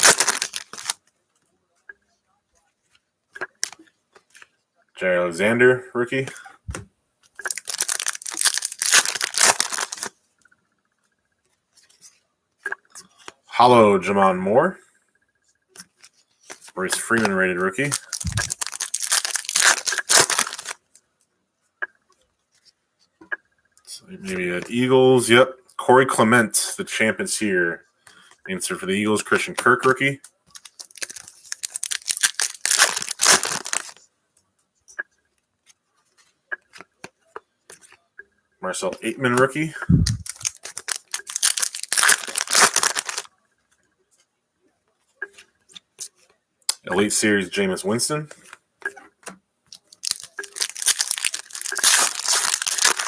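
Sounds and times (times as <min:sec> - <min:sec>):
foil wrapper crinkling and tearing: 0:00.0 - 0:01.0, 0:07.4 - 0:10.1, 0:17.8 - 0:20.9, 0:30.6 - 0:34.0, 0:40.0 - 0:43.3, 0:49.8 - 0:53.0.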